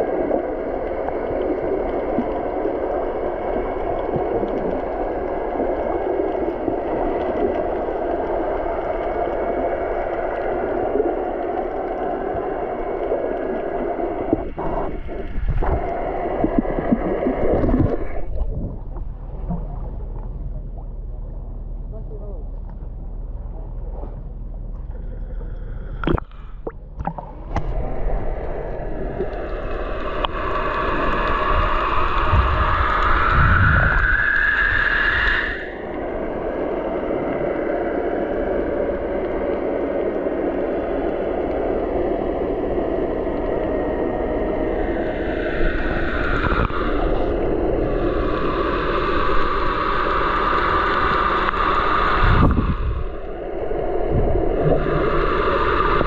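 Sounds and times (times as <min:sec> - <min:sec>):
wind noise: 0:14.3 - 0:19.8, 0:27.0 - 0:35.8, 0:45.2 - 0:50.2, 0:51.0 - 0:56.0
rising whine: 0:26.0 - 0:56.0.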